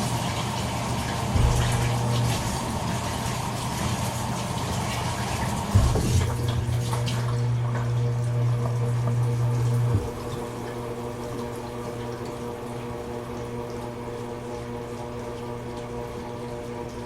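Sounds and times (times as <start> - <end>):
water running and splashing: 0.0 - 17.0
strong low electric hum: 0.7 - 17.0
quieter steady hum: 1.3 - 3.7, 5.7 - 14.6.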